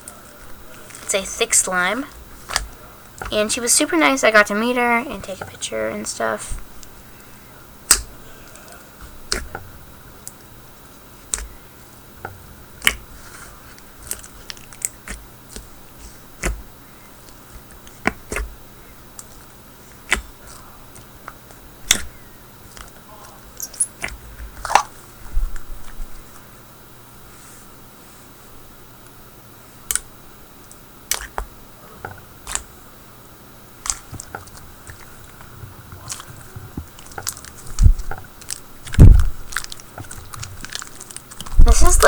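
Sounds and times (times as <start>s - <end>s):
slime squished with pops: 7.8s - 8.2s, 9.2s - 9.6s, 12.8s - 13.1s, 14.0s - 18.6s, 20.0s - 20.5s, 21.8s - 23.0s, 23.6s - 25.0s, 29.9s - 30.1s, 31.0s - 31.5s, 32.4s - 32.7s, 36.0s - 42.0s.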